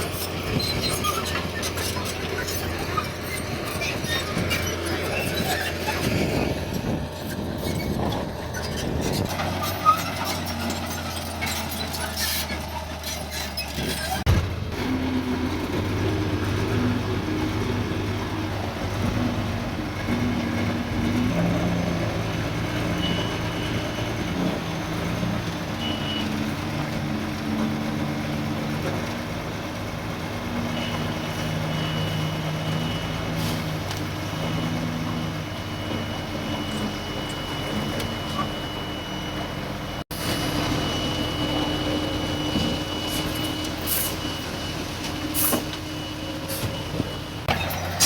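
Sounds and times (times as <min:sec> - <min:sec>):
diesel earthmoving machinery running: 0:00.0 - 0:48.0.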